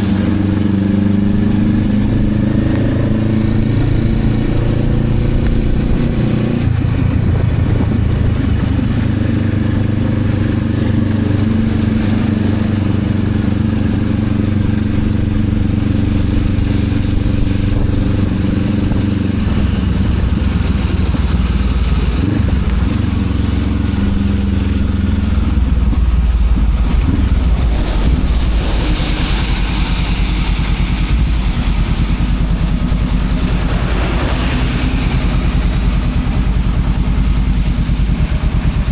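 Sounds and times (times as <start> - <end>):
motorcycle engine running: 0.0 - 38.9
hiss: 27.7 - 38.8.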